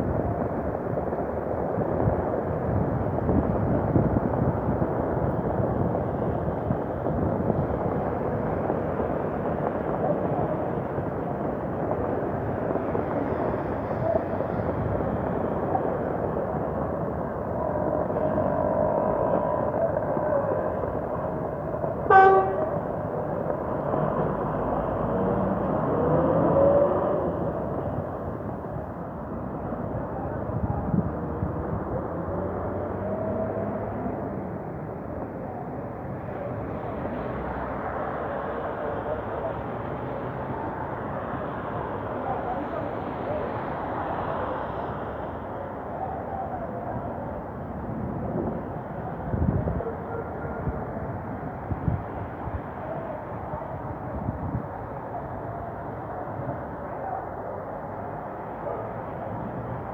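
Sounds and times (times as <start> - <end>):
vehicle horn: 22.1 - 22.8.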